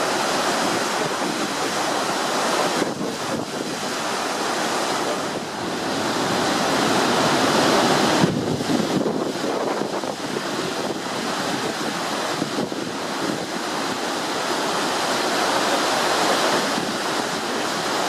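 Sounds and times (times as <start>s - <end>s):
water washing: 0.0s - 18.0s
wind rushing over microphone: 0.0s - 18.0s.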